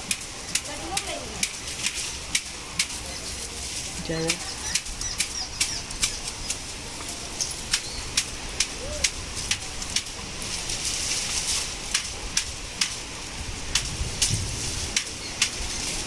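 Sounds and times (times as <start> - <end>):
heavy raindrops ticking: 0.0 - 10.8
storm wind rumble: 8.3 - 16.0.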